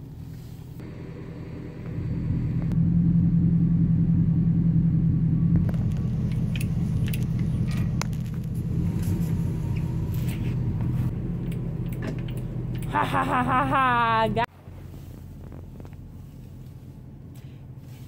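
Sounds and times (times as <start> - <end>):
vehicle engine humming: 0.0 - 18.0
light clicks and rattles: 5.6 - 8.7.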